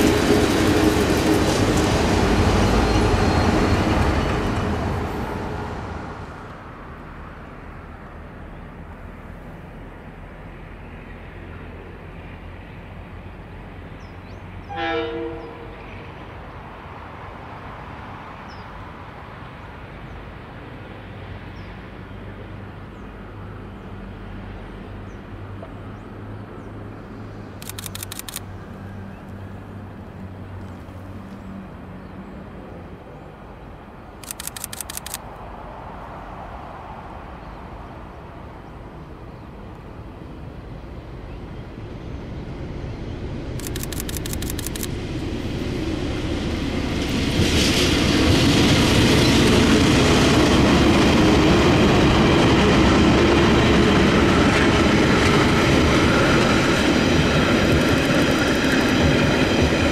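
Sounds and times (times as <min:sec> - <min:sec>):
train carriages rolling by: 0:00.0 - 0:07.2, 0:37.2 - 0:59.9
diesel locomotives passing: 0:00.0 - 0:59.9
rapid clicking: 0:27.6 - 0:28.4, 0:43.6 - 0:44.9.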